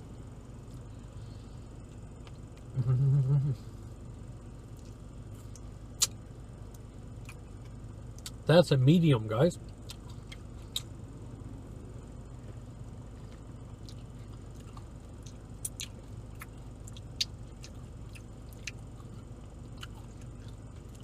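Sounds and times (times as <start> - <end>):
steady low hum: 0.0 - 21.0
mouth smacks: 5.5 - 6.2.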